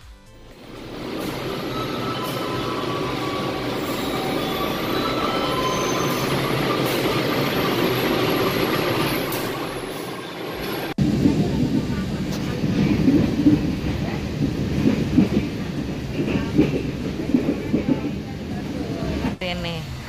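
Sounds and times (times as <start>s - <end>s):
train rumbling past: 0.3s - 20.0s
high-pitched wheel squealing: 0.9s - 10.9s.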